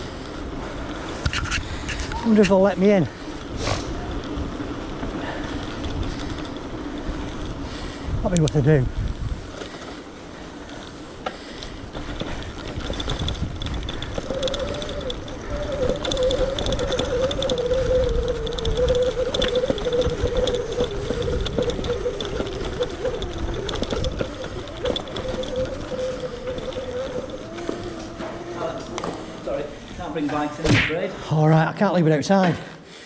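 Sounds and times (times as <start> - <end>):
electric bike rumble with rattles: 0.0 - 30.5
electric motor whine: 13.1 - 29.9.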